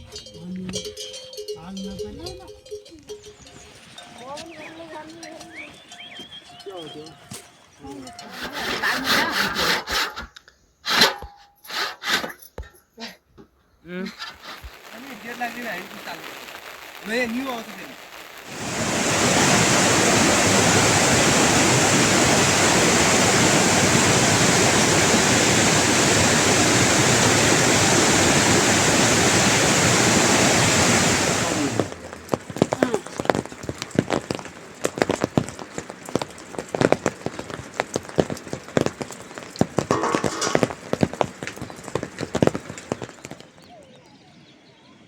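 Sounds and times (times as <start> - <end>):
heavy rain hiss: 14.0 - 43.6.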